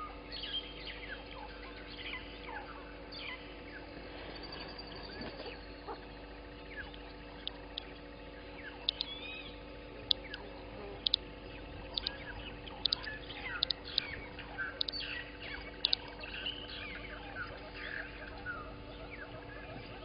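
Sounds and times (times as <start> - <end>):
birds chirping and whistling: 0.0 - 20.0
steady low hum: 0.0 - 20.0
sharp paired clicks: 11.9 - 14.2.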